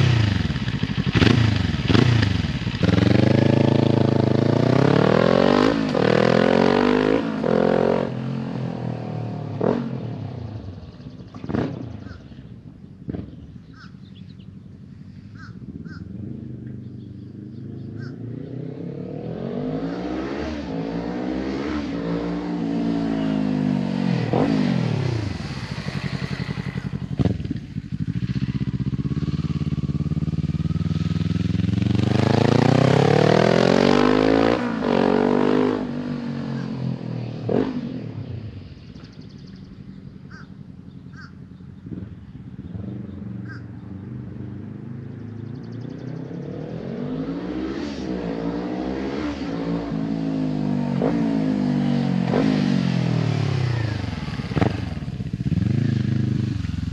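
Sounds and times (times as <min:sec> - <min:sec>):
motorcycle accelerating through gears: 0:00.0 - 0:56.9
faint bird calls: 0:10.7 - 0:18.6, 0:38.8 - 0:44.2.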